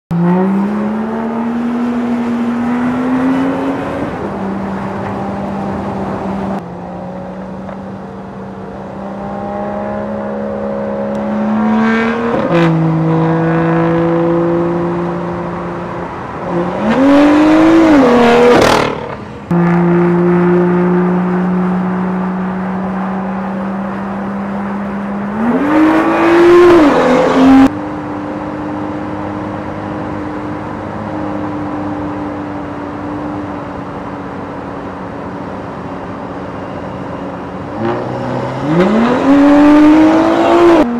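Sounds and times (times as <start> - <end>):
car engine revving: 0.1 - 7.8, 8.6 - 27.8, 37.6 - 40.9.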